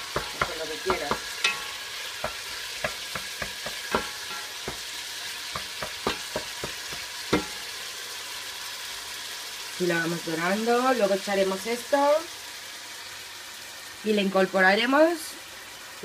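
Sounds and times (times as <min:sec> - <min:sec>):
wooden spoon knocking and scraping pot: 0:00.0 - 0:07.7
chicken sizzling in oil: 0:00.0 - 0:16.0.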